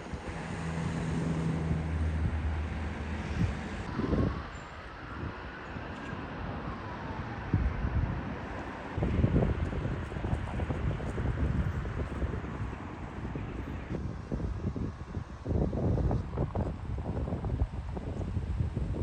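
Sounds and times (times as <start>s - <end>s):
vehicle engine passing: 0.0s - 3.9s
wind on microphone: 0.0s - 19.0s.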